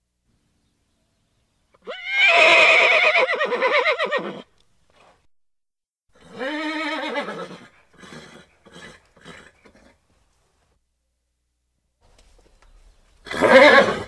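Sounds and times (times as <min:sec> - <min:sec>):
horse neighing: 0:01.8 - 0:04.5, 0:06.2 - 0:10.0, 0:13.2 - 0:14.0.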